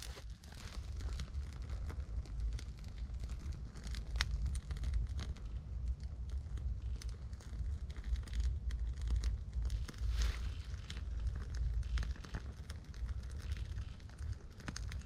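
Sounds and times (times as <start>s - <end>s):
kindling crackling: 0.0s - 15.0s
low steady rumble: 0.0s - 15.0s.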